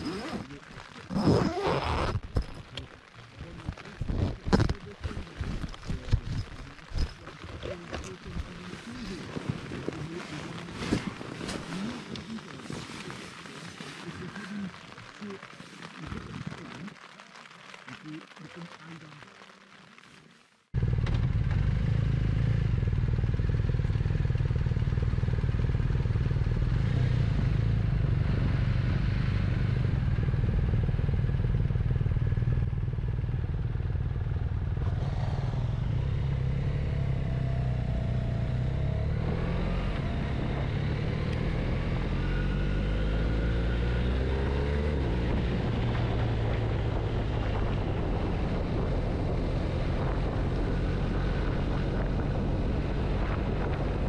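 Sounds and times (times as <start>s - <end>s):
motorcycle engine revving: 20.8s - 54.0s.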